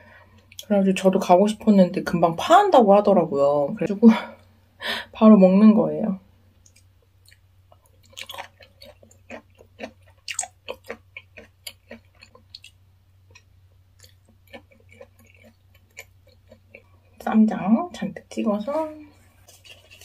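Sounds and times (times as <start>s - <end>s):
wet chewing mouth clicks: 6.6s - 16.9s.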